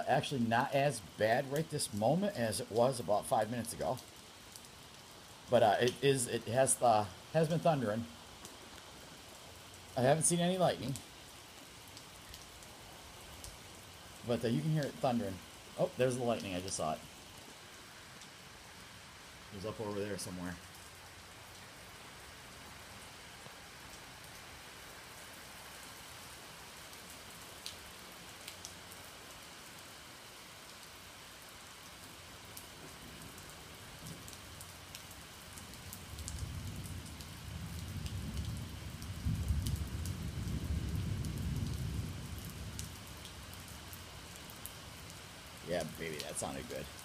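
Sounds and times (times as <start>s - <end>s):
steady rain: 0.0s - 47.0s
low roll of thunder: 36.2s - 42.9s.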